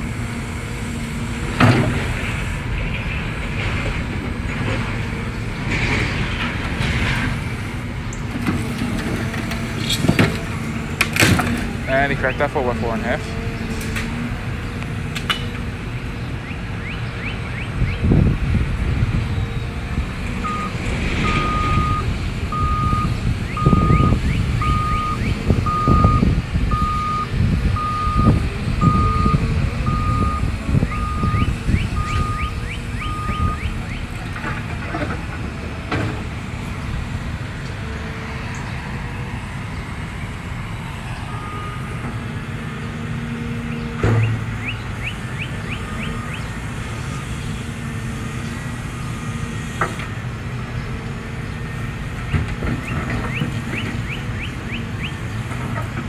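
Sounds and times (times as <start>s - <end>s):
excavator diesel engine rumbling: 0.0s - 56.0s
backup alarm beeping: 20.4s - 34.1s.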